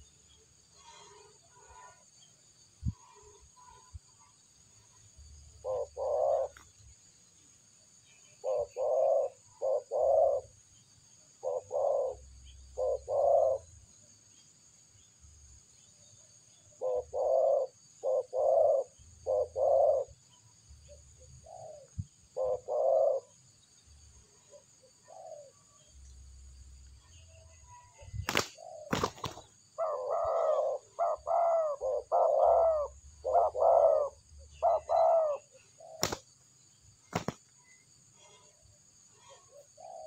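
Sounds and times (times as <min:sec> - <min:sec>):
dove cooing: 0:05.6 - 0:06.7, 0:08.4 - 0:10.6, 0:11.4 - 0:13.7, 0:16.8 - 0:20.2, 0:21.2 - 0:23.4, 0:24.5 - 0:25.6, 0:28.3 - 0:36.2, 0:39.2 - 0:40.0.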